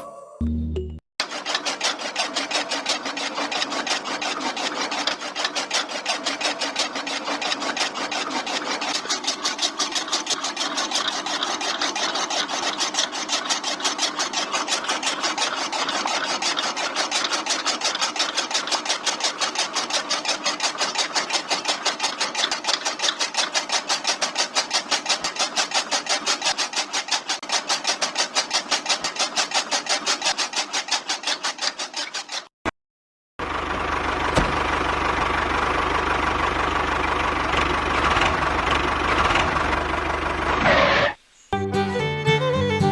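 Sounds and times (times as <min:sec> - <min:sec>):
fast even clatter: 0:01.2 - 0:32.5.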